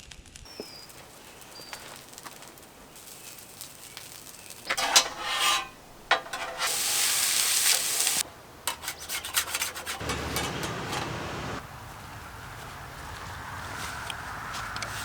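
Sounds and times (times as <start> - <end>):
loud sizzling: 0.7 - 8.3
utensil scraping and stirring: 3.2 - 11.6.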